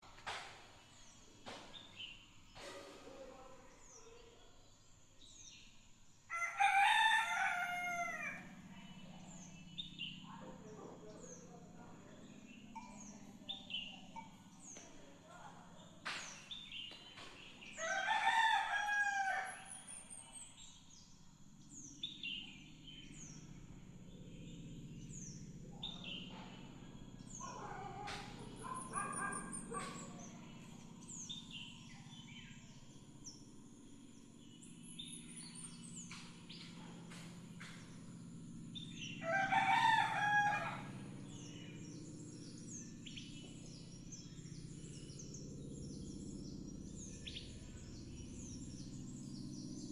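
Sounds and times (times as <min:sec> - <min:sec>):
small birds chirping: 0:00.0 - 0:49.9
rooster crowing: 0:06.3 - 0:08.5, 0:17.8 - 0:19.8, 0:39.2 - 0:41.1.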